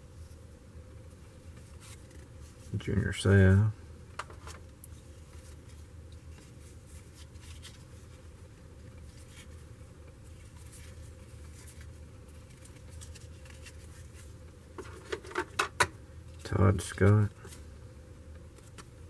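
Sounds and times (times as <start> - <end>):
low steady hum: 0.0 - 19.0
cards rustling and clicking: 1.5 - 2.4, 4.2 - 8.0, 10.2 - 17.6.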